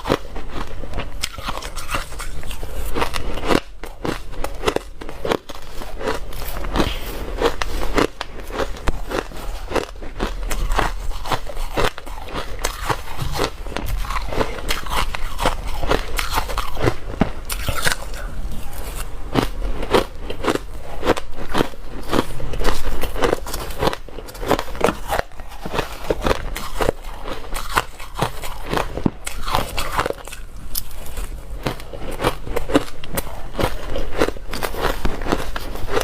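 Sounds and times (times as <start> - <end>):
crunching ice between teeth: 0.0 - 36.0.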